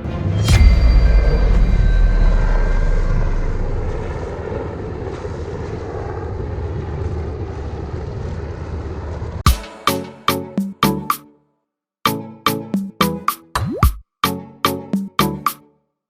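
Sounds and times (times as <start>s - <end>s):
engine drone: 0.0s - 9.4s.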